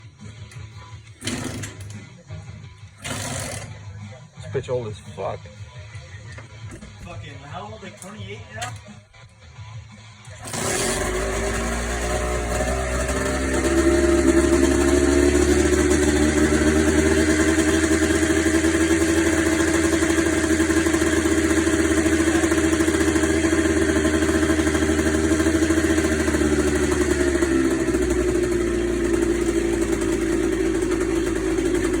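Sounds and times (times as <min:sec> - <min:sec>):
motorcycle engine idling: 0:10.5 - 0:32.0.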